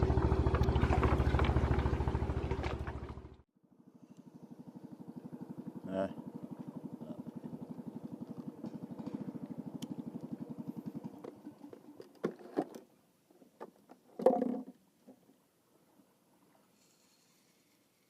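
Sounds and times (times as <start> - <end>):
small engine puttering: 0.0 - 12.9.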